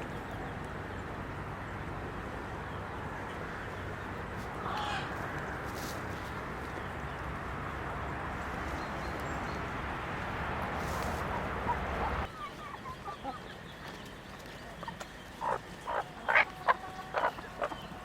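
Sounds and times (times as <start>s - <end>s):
chickens clucking: 10.8s - 18.0s.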